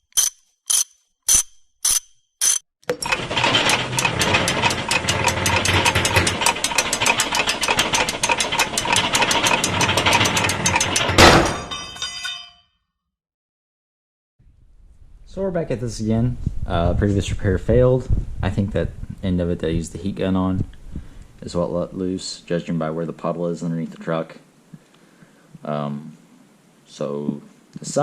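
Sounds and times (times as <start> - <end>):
sharp metallic clicks: 0.0 - 11.1
ratcheting clicks: 0.0 - 11.2
loud ringing metallic hit: 10.9 - 12.5.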